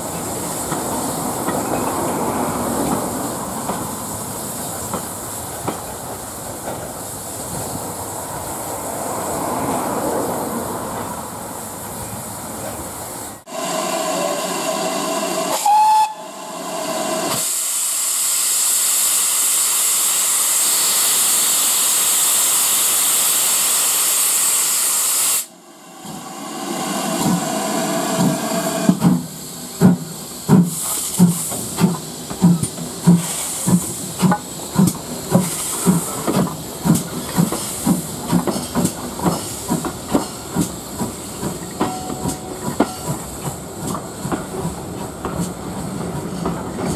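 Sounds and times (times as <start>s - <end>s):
loud hiss of steam: 0.0s - 46.9s
steam locomotive whistle: 13.5s - 17.9s.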